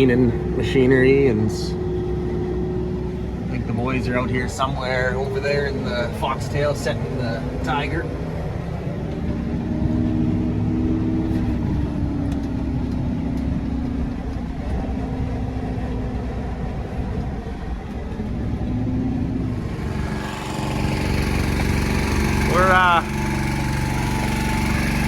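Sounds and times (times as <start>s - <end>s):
farm machinery engine running: 0.0s - 25.0s
bright noisy machine sound: 19.5s - 25.0s.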